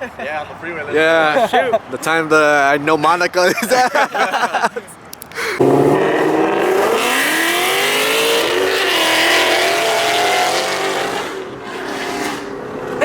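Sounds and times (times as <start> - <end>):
car engine accelerating: 5.6 - 11.6.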